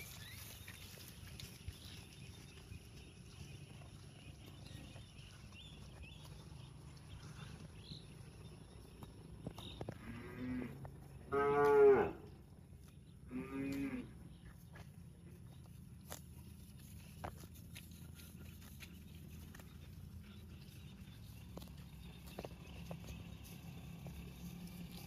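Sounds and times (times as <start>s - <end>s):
cow mooing: 9.9s - 12.3s, 13.3s - 14.2s.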